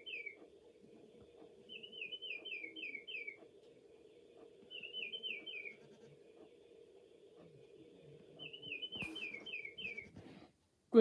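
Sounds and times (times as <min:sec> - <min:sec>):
recorded birdsong from speaker: 0:00.0 - 0:00.4
faint steady hum: 0:00.0 - 0:11.0.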